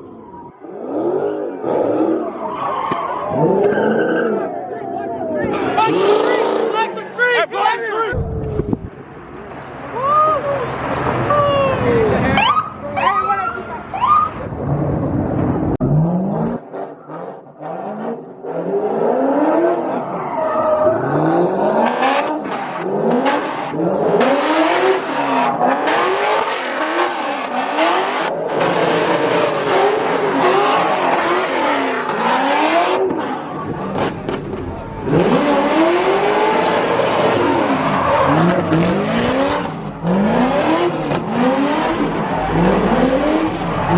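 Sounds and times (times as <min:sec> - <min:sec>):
car engine revving: 0:14.5 - 0:43.9.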